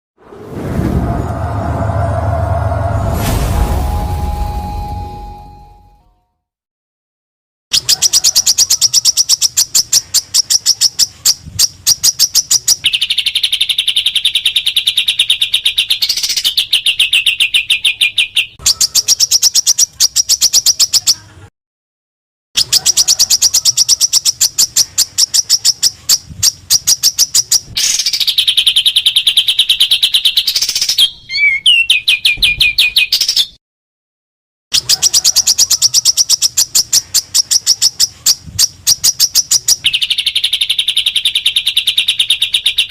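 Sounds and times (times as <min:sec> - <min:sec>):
buzzy bird trill: 0:34.8 - 0:42.9.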